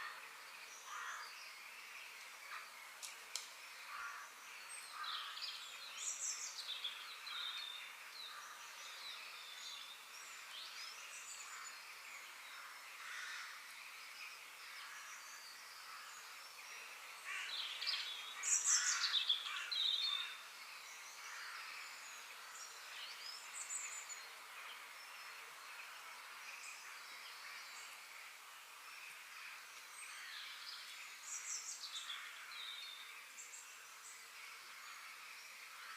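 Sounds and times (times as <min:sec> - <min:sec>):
birds calling and chirping: 0:00.0 - 0:35.9.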